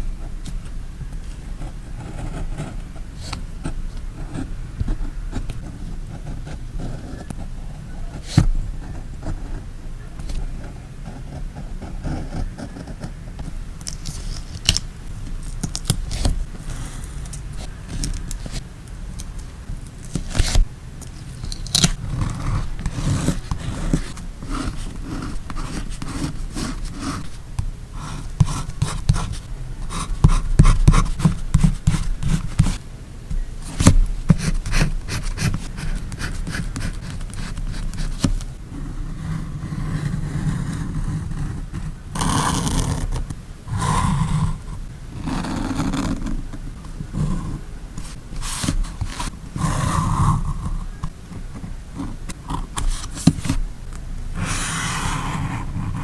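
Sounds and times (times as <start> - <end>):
paper rustling and scraping: 13.4 - 27.4, 33.6 - 38.6, 48.0 - 53.8.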